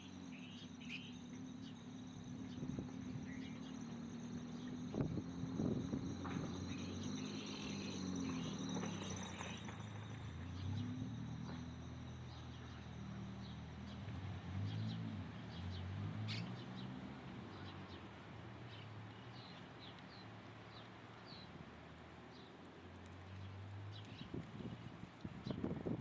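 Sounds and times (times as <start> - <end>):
birds chirping: 0.0 - 18.1.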